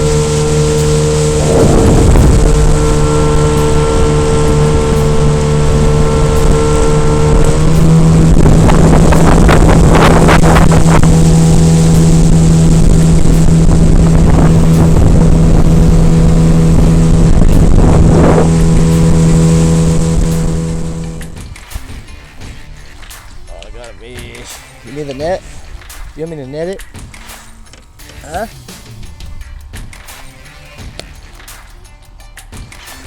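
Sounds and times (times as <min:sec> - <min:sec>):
outboard motor running: 0:00.0 - 0:22.9
boat hull slapping water: 0:00.0 - 0:28.2.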